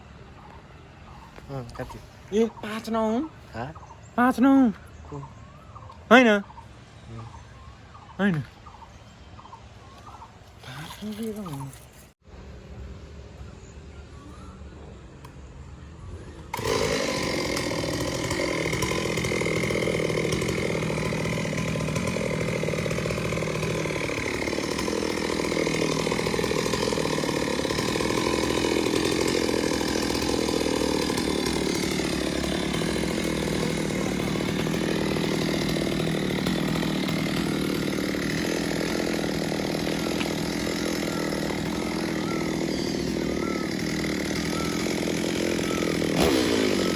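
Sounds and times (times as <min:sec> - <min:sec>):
chainsaw cutting wood: 0:10.1 - 0:12.1, 0:16.5 - 0:46.9.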